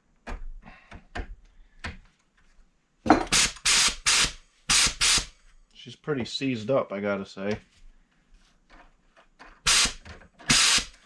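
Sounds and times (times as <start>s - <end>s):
compressed air hissing bursts: 3.3s - 5.4s, 9.7s - 11.0s.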